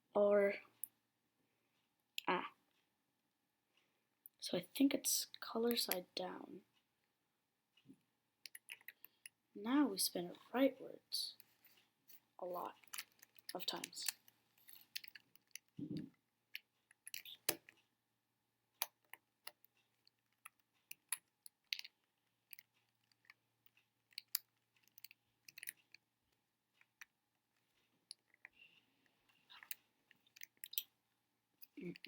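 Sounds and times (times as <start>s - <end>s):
faint plastic clicks: 18.8s - 31.0s.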